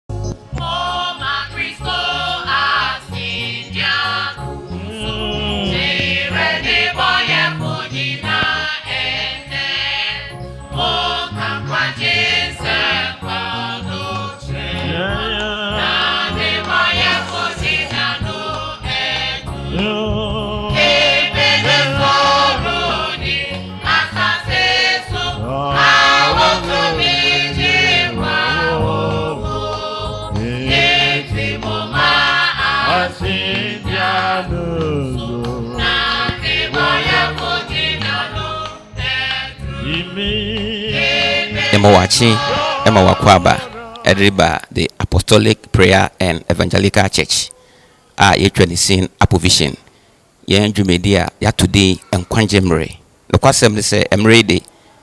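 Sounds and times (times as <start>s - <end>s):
choir singing gospel over beat: 0.5s - 44.5s.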